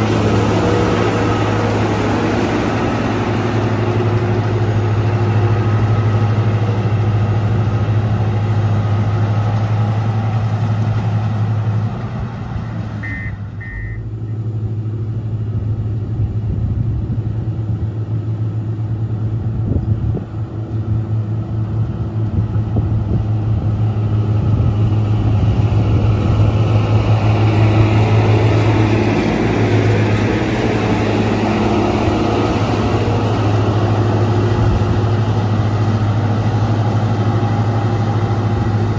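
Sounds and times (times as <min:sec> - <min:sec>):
diesel engine running: 0:00.0 - 0:38.9
short high beeps: 0:13.0 - 0:14.1.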